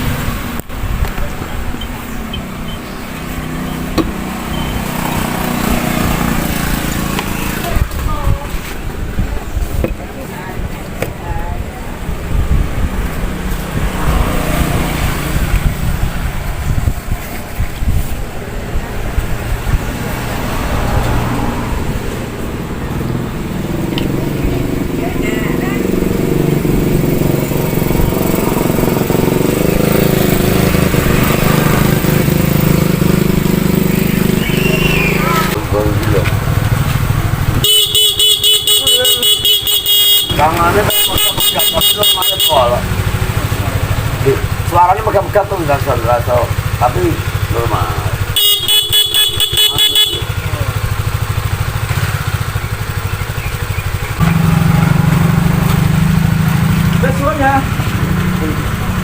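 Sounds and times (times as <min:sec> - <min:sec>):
two-stroke motorcycle engine idling: 0:22.8 - 0:59.0.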